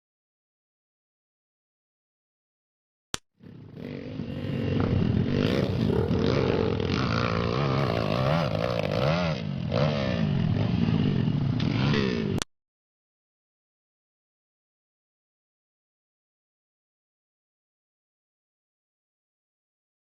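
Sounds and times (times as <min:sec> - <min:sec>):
motorcycle engine revving: 0:03.4 - 0:12.5.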